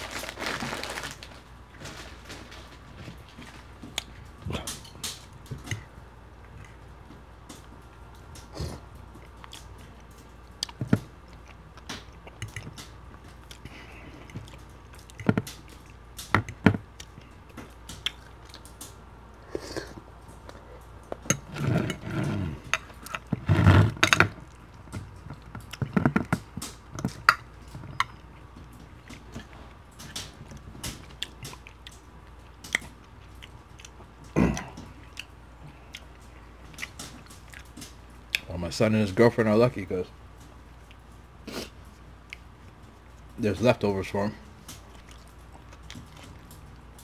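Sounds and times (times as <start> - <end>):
person chewing wetly: 7.6 - 23.5, 24.3 - 38.5, 40.4 - 43.3, 44.7 - 47.0
lip smacks: 8.3 - 21.2.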